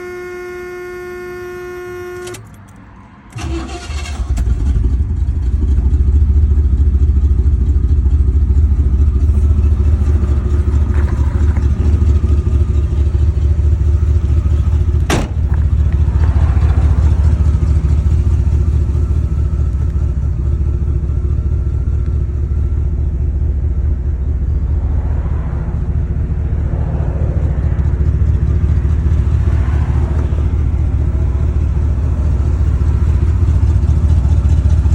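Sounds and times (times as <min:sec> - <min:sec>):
steady warning tone: 0:00.0 - 0:02.6
car engine starting and idling: 0:00.0 - 0:34.9.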